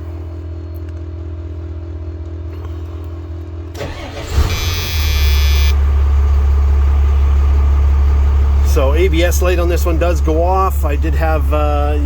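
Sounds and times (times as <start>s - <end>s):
diesel engine cranking and idling: 0.0s - 12.0s
high whine: 4.4s - 5.8s.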